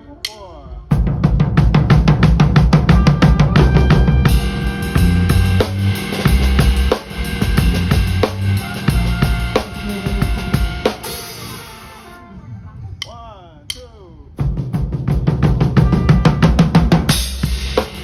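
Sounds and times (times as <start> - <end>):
fast drum strokes: 0.2 - 12.2, 13.0 - 18.0
live band playing: 1.6 - 12.6, 15.3 - 18.0.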